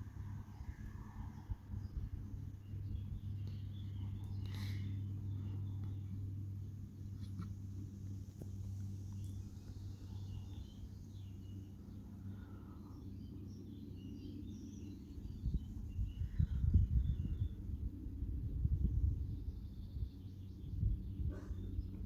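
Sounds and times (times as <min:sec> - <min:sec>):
rough low rumbles: 0:00.0 - 0:13.6, 0:15.2 - 0:22.0
low steady hum: 0:00.0 - 0:22.0
faint bird chirps: 0:08.6 - 0:17.8.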